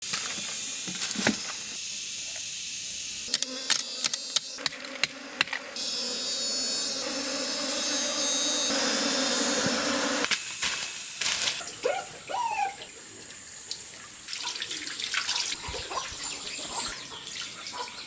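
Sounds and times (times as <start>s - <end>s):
high-pitched insect hiss: 0.0s - 18.0s
low bee-like hum: 1.5s - 10.3s.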